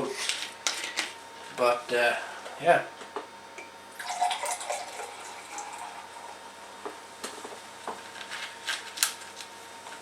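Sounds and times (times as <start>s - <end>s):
soda fizzing: 4.0s - 6.4s
soda pouring into a glass: 4.0s - 6.4s.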